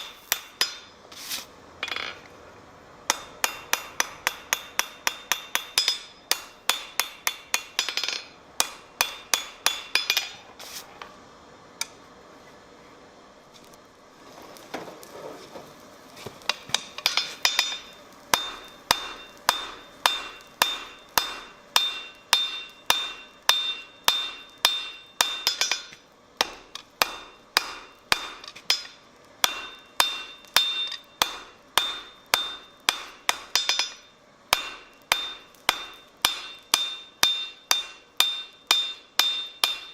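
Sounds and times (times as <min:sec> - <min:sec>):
hammer striking steel on anvil: 0:00.0 - 0:01.0, 0:03.1 - 0:10.4, 0:16.4 - 0:39.9.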